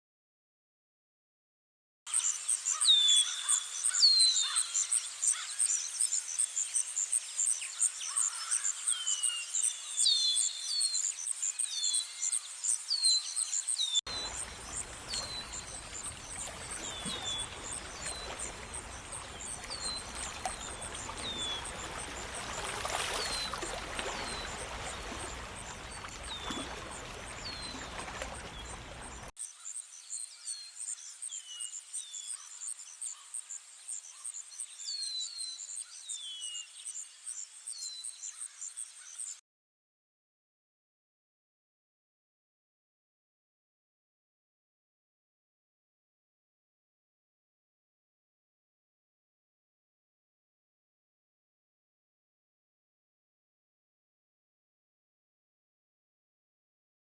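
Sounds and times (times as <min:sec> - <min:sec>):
bird chirps: 0:02.1 - 0:33.4.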